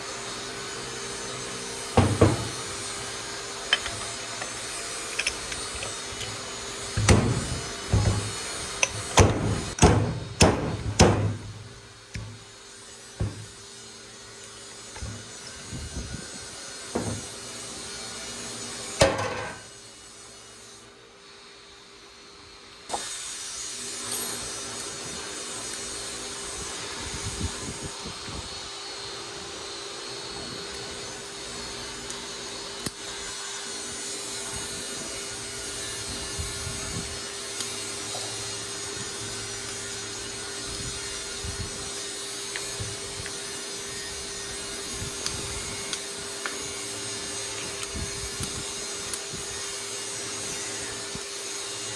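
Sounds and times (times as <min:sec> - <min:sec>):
constant hum: 0:01.8 - 0:13.8
tools knocking on parts: 0:02.0 - 0:02.8, 0:03.7 - 0:12.5, 0:13.2 - 0:13.5, 0:19.0 - 0:19.6.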